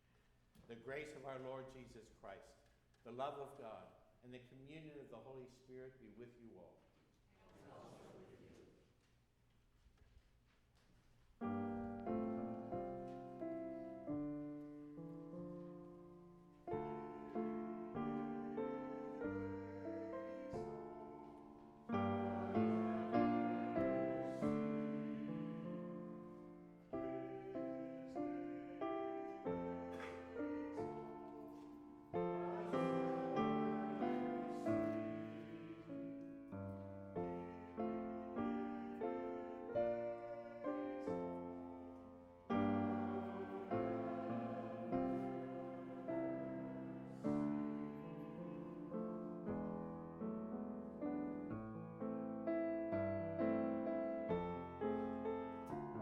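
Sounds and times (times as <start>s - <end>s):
piano playing slow chords: 11.4s - 56.0s.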